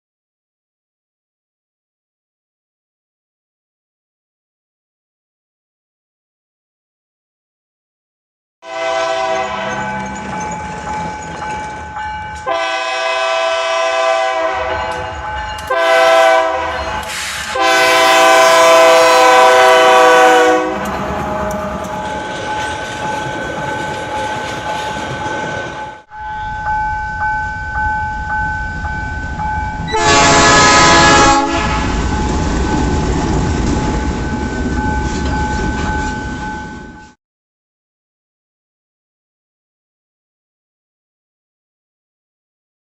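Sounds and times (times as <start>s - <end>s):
locomotive air horn blasts: 8.6s - 10.0s, 12.4s - 22.0s, 29.9s - 32.0s
train wheels on rail: 9.0s - 37.2s.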